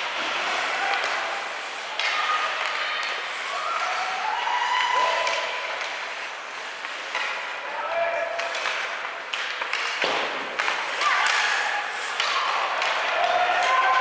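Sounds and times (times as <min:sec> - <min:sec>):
crowd clapping and shouting: 0:10.6 - 0:14.0.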